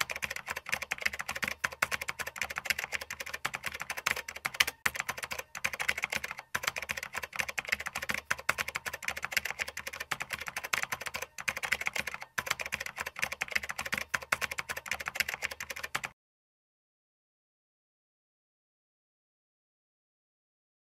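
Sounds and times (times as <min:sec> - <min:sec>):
computer keyboard typing: 0:00.0 - 0:16.2.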